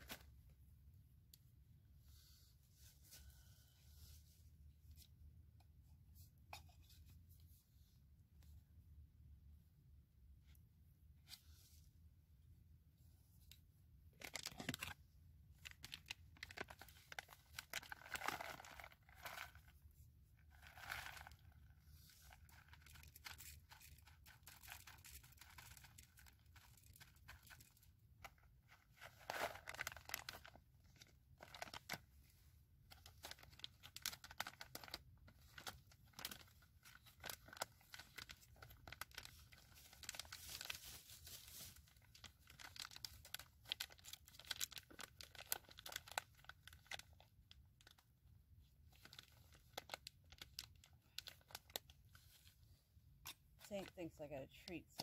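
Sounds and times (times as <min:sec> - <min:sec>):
foil bag crinkling: 0:15.6 - 0:19.7, 0:20.5 - 0:21.7, 0:29.0 - 0:30.6, 0:33.0 - 0:48.0.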